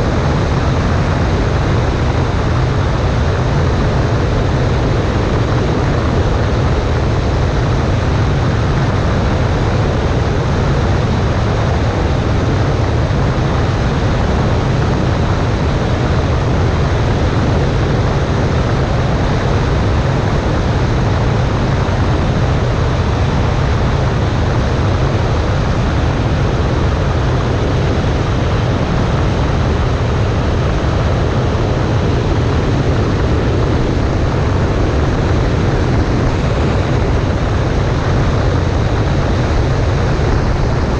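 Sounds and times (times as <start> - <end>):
light aircraft engine droning: 0.0 - 40.9
wind rushing: 24.8 - 40.9.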